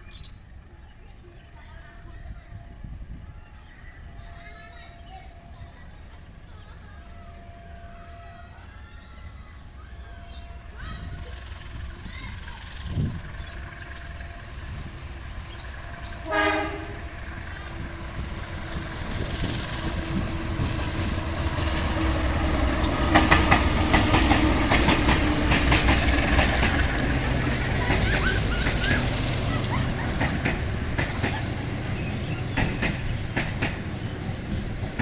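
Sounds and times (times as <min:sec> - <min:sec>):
diesel locomotives rumbling: 0:00.0 - 0:35.0
wheels clacking over rail joints: 0:09.6 - 0:35.0
train horn blast: 0:16.1 - 0:17.7.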